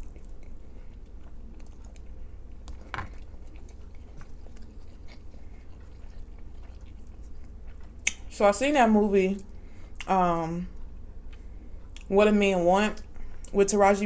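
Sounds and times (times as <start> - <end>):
person chewing food: 0.0 - 8.3.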